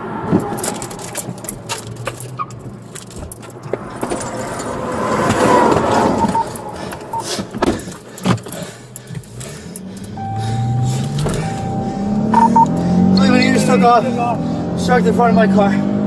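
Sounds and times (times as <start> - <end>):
car engine and road noise: 0.0 - 16.0
rattling: 0.3 - 10.2.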